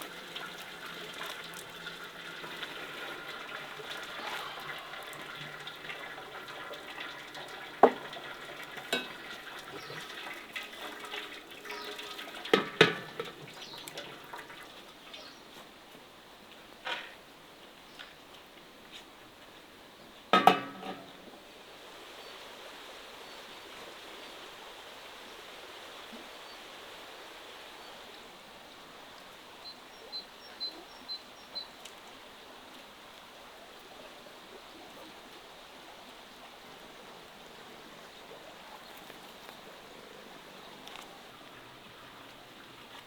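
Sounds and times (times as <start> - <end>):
metal cookware clanking: 0.1 - 10.2, 10.9 - 13.4, 20.4 - 21.1.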